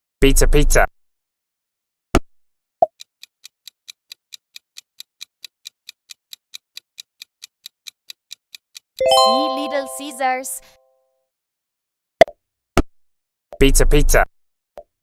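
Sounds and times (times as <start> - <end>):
clock-like ticking: 3.0 - 8.9.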